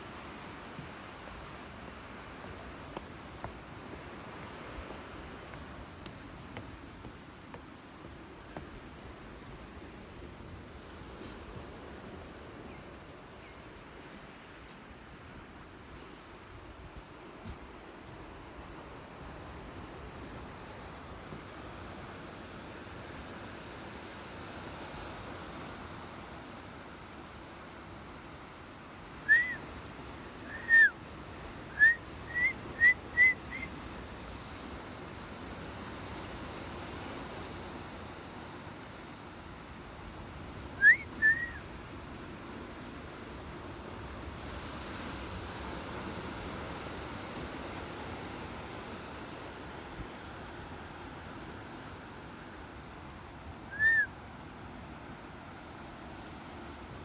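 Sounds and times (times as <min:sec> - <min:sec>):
short whistled notes: 0:29.3 - 0:29.6, 0:30.5 - 0:30.9, 0:31.8 - 0:33.7, 0:40.8 - 0:41.6, 0:53.7 - 0:54.1.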